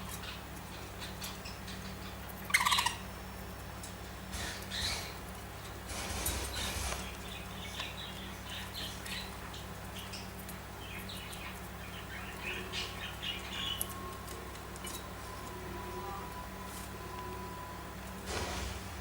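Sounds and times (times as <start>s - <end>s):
budgerigars chirping and warbling: 0.0s - 3.1s, 4.4s - 5.2s, 6.3s - 13.9s.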